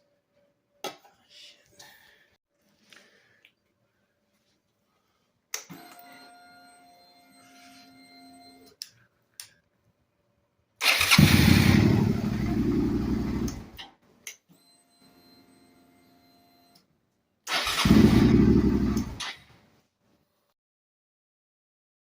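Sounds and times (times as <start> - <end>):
starter cranking and engine starting: 10.8 - 13.8, 17.5 - 19.4
starter motor whine: 10.8 - 13.8, 17.5 - 19.3
starter motor click: 17.5 - 19.3.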